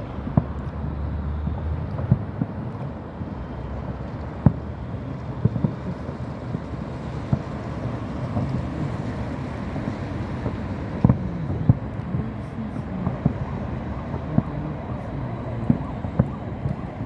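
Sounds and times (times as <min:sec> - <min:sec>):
fireworks bursting: 0:00.0 - 0:17.0
wind rumble on microphone: 0:00.0 - 0:17.0.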